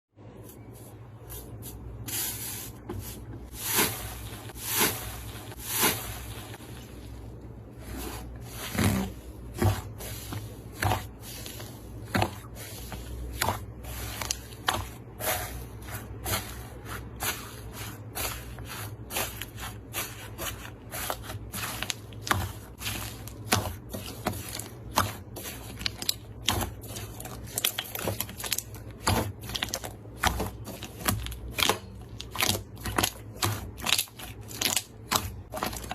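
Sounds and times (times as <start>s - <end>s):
slime squishing with wet pops: 19.1s - 35.9s.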